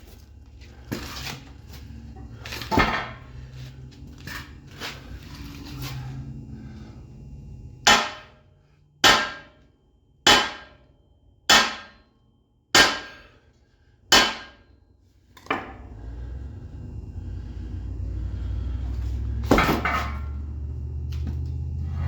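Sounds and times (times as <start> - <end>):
hammer striking steel: 7.8 - 8.4, 9.0 - 10.8, 11.5 - 12.1, 12.7 - 13.3, 14.1 - 14.7.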